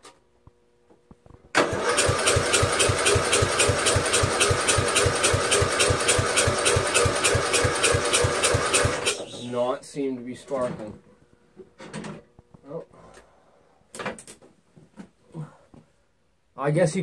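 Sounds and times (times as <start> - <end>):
electric starter cranking engine: 1.5 - 9.3.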